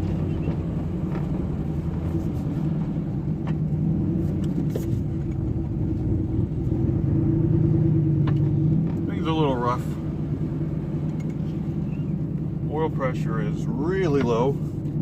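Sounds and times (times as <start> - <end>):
truck engine running: 0.0 - 15.0
faint engine ticks: 8.2 - 9.2, 11.0 - 15.0.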